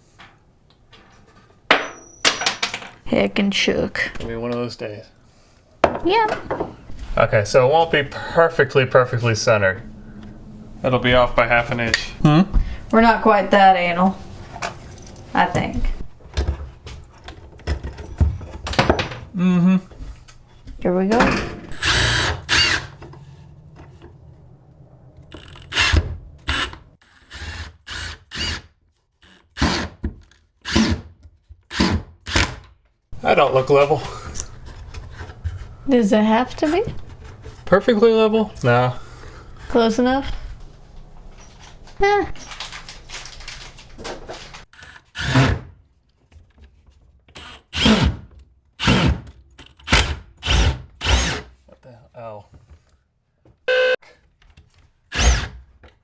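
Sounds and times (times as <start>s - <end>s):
cordless drill driving screws: 21.7s - 23.2s, 25.3s - 28.6s, 49.9s - 51.4s.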